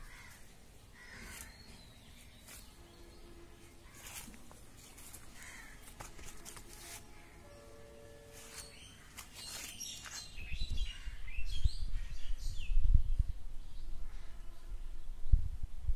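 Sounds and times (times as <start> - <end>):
small birds chirping: 0.0 - 7.8, 8.4 - 14.8
steady low tone: 2.6 - 9.1.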